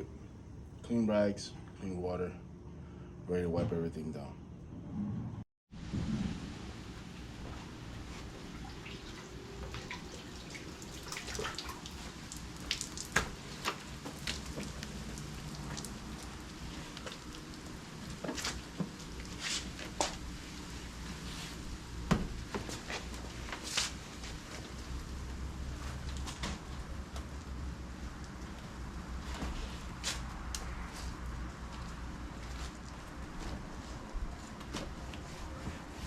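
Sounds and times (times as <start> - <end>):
soapy water splashing and dripping: 7.0 - 33.8.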